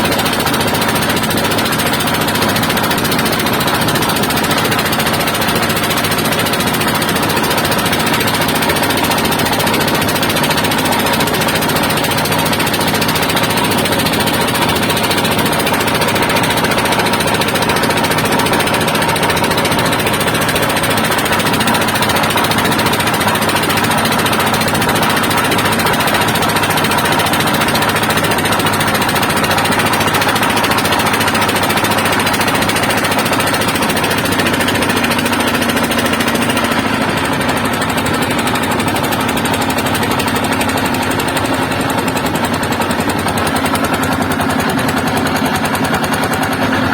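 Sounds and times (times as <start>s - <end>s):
boat engine droning: 0.0s - 46.9s.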